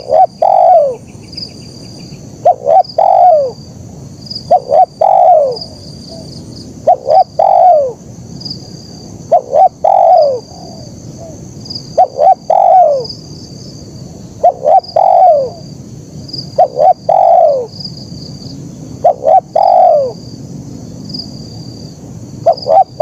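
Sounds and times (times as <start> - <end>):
dove cooing: 0.0 - 1.1, 2.4 - 3.6, 4.5 - 8.0, 9.3 - 11.4, 12.0 - 13.2, 14.2 - 15.7, 16.5 - 17.8, 19.0 - 20.2, 22.4 - 23.0
small bird chirping: 0.0 - 3.6.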